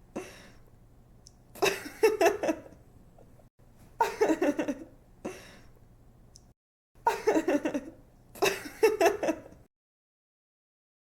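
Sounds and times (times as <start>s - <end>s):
faint breath: 0.2s - 0.7s, 5.2s - 5.8s
young woman giggling: 1.6s - 2.8s, 4.0s - 4.9s, 7.1s - 9.7s.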